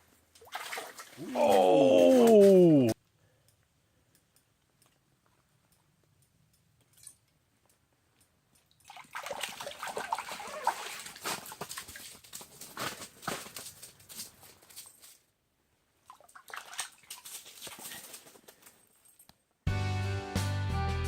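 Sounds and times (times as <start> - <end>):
water splashing and sloshing: 0.3 - 2.5, 8.7 - 13.9, 16.0 - 18.4.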